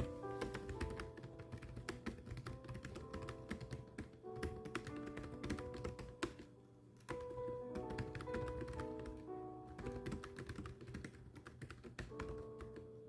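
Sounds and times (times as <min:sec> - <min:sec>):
background music with held notes: 0:00.0 - 0:13.0
rapid keyboard typing: 0:00.0 - 0:13.0.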